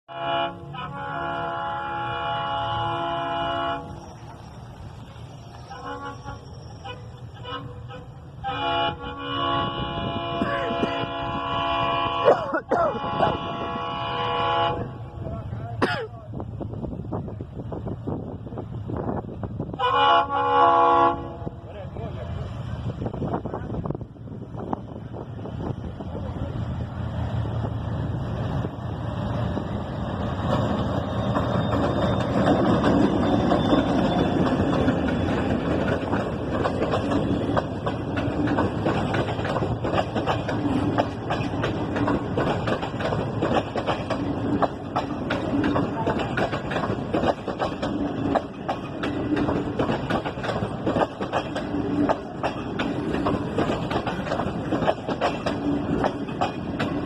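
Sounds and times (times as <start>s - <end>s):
train wheels clacking on rails: 24.6s - 57.0s.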